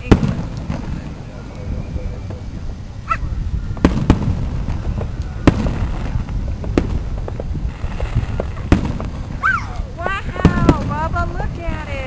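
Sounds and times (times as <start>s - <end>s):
fireworks bangs and cracks: 0.0s - 2.8s, 3.4s - 12.0s
low continuous rumble: 0.0s - 12.0s.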